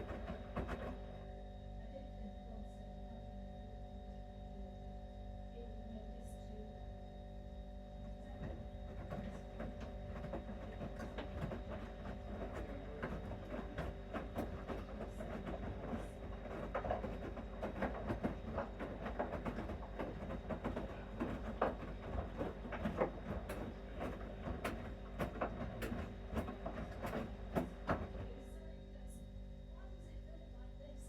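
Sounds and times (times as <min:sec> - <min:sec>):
laundry drum clunks and clicks: 0:00.0 - 0:01.2, 0:08.0 - 0:28.6
washing machine motor hum: 0:00.0 - 0:31.0.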